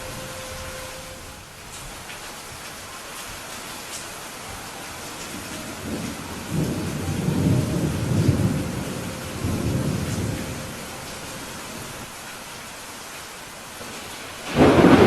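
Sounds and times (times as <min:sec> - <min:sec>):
steady rain hissing: 0:00.0 - 0:15.0
thunder rumbling: 0:04.6 - 0:12.1, 0:13.8 - 0:15.0.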